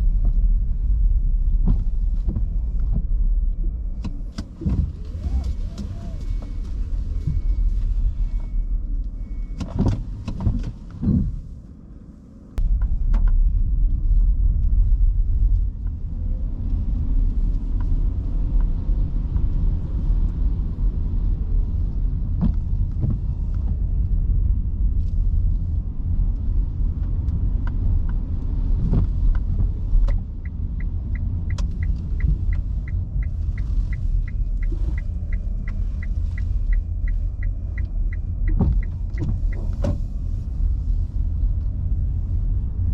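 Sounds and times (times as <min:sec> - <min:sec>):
tyre and road rumble: 0:00.0 - 0:42.9
turn signal ticking: 0:01.5 - 0:11.4, 0:26.2 - 0:42.2.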